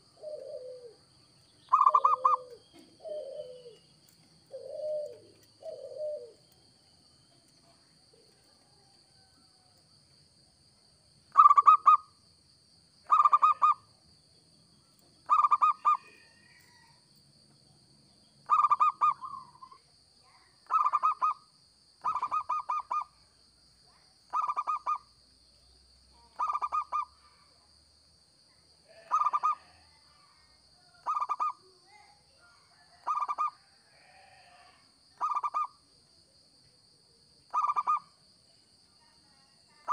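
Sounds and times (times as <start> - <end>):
dove cooing: 0.0 - 1.0, 1.7 - 6.5, 11.4 - 12.0, 13.1 - 13.8, 15.3 - 16.4, 18.5 - 19.7, 20.7 - 21.4, 22.0 - 23.1, 26.4 - 27.1, 28.9 - 29.8, 35.2 - 35.7, 37.5 - 38.0.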